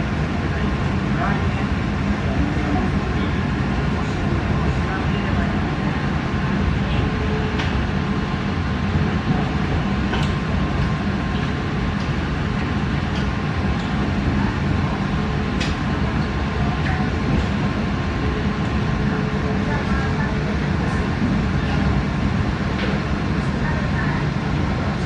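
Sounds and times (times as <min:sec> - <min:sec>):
train rumble from inside car: 0:00.0 - 0:25.0.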